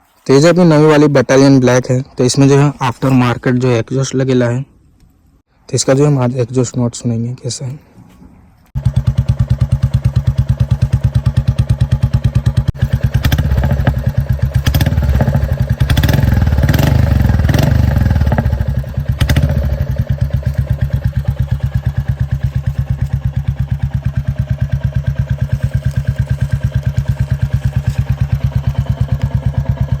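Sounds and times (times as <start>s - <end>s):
motorcycle engine idling and revving: 8.7s - 30.0s
exhaust pops: 8.9s - 30.0s.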